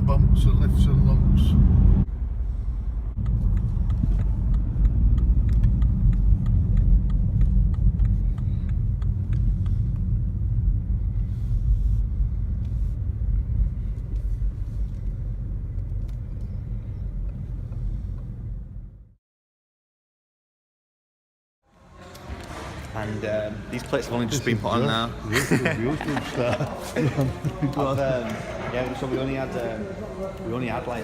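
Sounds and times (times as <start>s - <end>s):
engine and tyre rumble: 0.0s - 19.2s.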